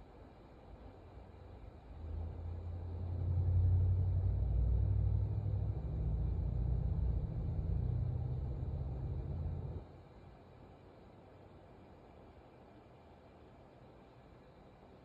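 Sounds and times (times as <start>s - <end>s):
motor vehicle rumble: 1.9s - 9.8s.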